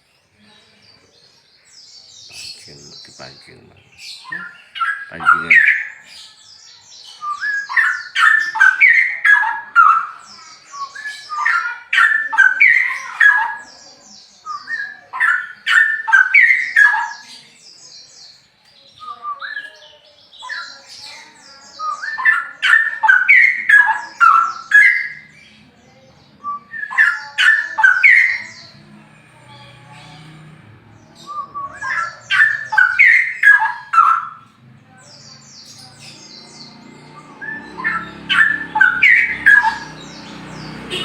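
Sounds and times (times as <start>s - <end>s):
bird warbling and whistling: 4.0s - 6.2s, 7.1s - 13.7s, 21.7s - 25.3s, 26.4s - 28.7s, 31.2s - 34.5s, 36.2s - 41.0s.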